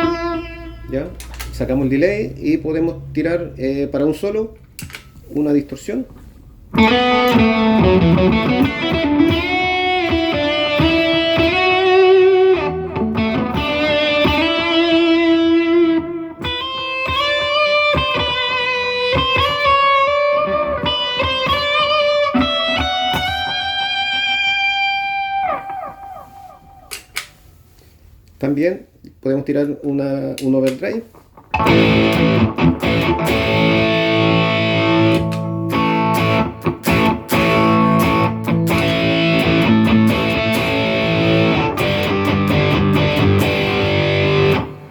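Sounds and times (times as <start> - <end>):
distorted electric guitar solo: 0.0 - 1.4, 6.7 - 27.1, 31.5 - 44.9.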